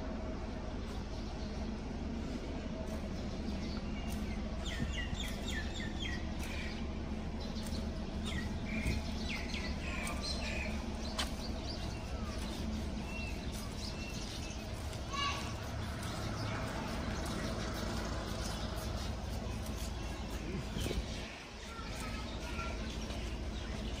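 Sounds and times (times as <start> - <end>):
birds chirping: 0.0 - 24.0
steady low hum: 0.0 - 24.0.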